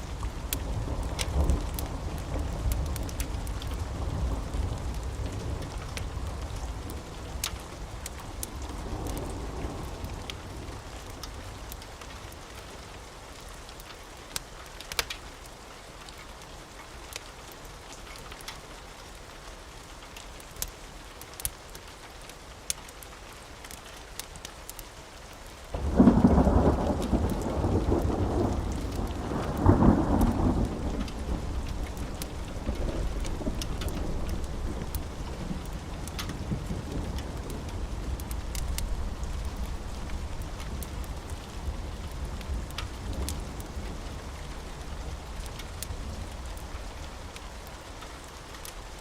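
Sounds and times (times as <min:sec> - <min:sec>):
steady rainfall: 0:00.0 - 0:49.0
deep thunder rumble: 0:25.8 - 0:47.3.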